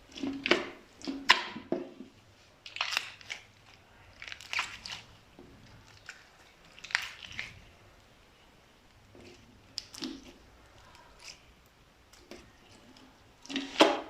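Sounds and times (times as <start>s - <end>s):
slime popping and crackling: 2.6s - 7.7s, 9.6s - 14.0s.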